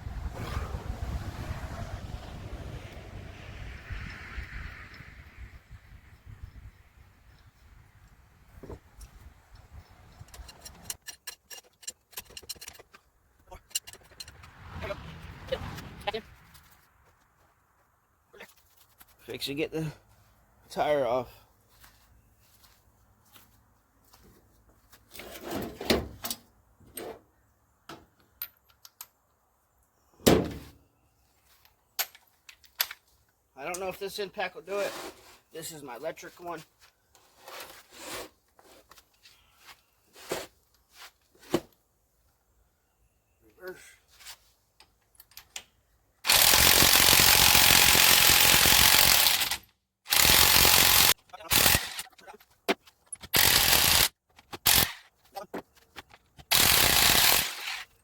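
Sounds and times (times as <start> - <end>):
tools clunking and scraping: 8.5 - 14.8, 25.0 - 29.3, 34.7 - 35.5, 37.1 - 41.8, 52.0 - 53.4, 54.2 - 56.5
electric impact wrench hammering: 46.2 - 52.1, 53.3 - 55.0, 56.5 - 57.9.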